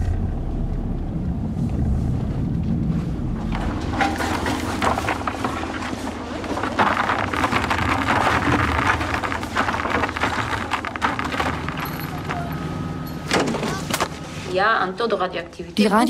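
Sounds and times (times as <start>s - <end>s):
low engine hum: 0.0s - 4.1s
irregular clatter and crackle: 0.0s - 12.6s.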